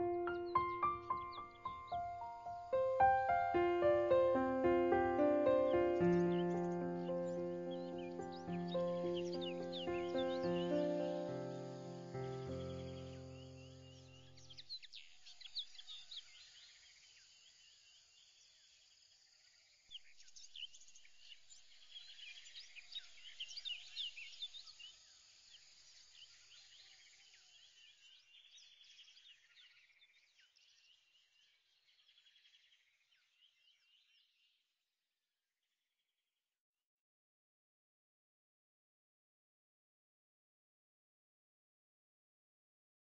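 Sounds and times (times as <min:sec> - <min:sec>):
birds chirping: 0:00.0 - 0:16.4.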